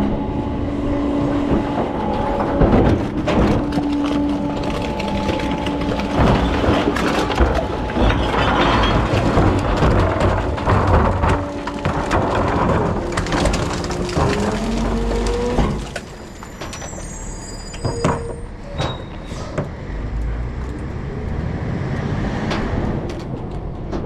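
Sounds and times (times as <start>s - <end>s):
garbage truck running: 0.0s - 24.0s
clicks and rattles: 1.5s - 16.9s
high squeaks: 16.2s - 19.5s.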